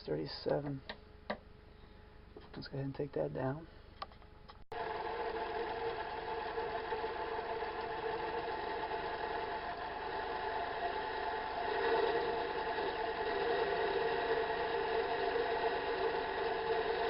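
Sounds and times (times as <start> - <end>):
metal lathe running: 4.7 - 17.0.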